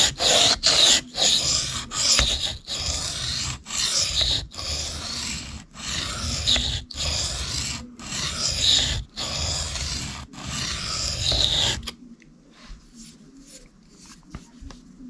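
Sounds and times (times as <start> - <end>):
knife scraping on sharpening stone: 0.0 - 12.0.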